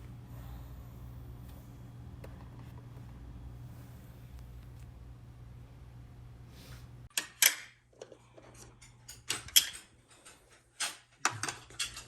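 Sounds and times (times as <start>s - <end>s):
steady low hum: 0.0s - 7.1s
dishes and utensils clinking: 7.1s - 12.0s.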